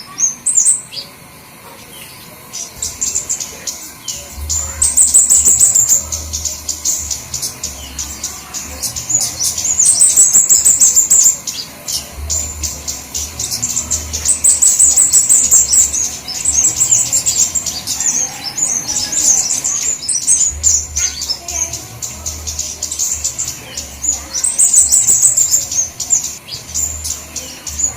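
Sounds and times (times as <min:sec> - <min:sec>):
low hum: 0:02.3 - 0:24.5
high-pitched bird chirps: 0:02.7 - 0:27.9.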